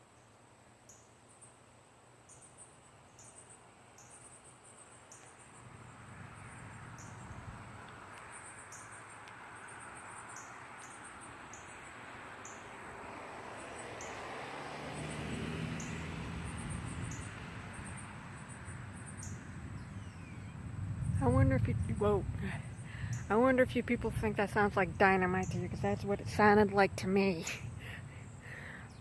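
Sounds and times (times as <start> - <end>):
insects chirping: 2.2 - 29.0
distant thunder rumbling: 15.1 - 28.7.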